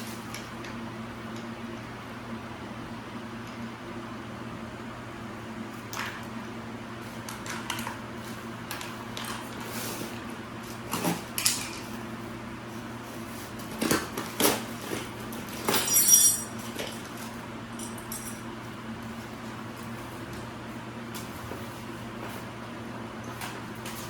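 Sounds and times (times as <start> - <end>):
steady low hum: 0.0 - 24.0
small metal parts clinking: 15.7 - 17.0, 17.8 - 18.4.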